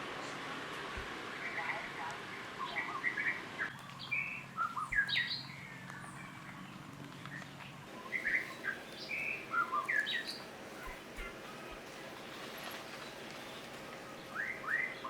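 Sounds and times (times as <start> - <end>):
high-pitched chirping calls: 7.9 - 15.0.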